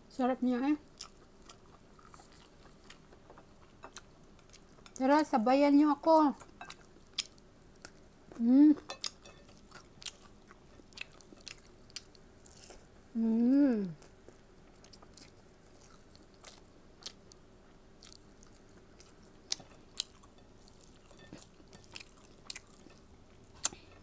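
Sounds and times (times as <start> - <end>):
person chewing food: 0.9 - 5.0, 6.4 - 13.1, 13.8 - 24.0
person humming mmm: 8.4 - 8.8, 13.1 - 14.0.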